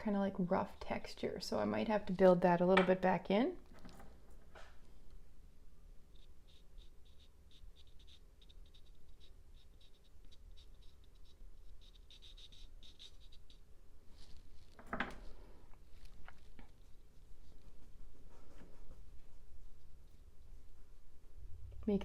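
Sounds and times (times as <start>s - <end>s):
pastel scratching on paper: 6.1s - 14.7s.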